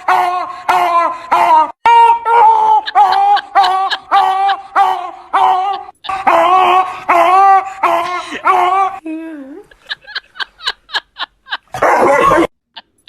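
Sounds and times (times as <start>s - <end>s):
dog barking: 11.7s - 12.5s.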